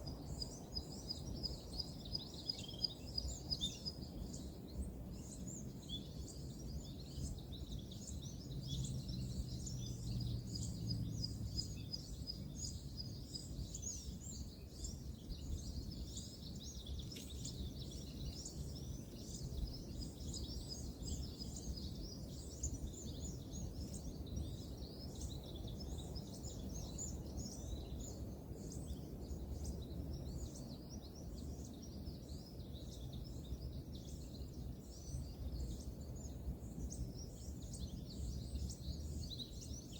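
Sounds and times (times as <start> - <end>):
distant road traffic rumble: 8.8 - 12.8.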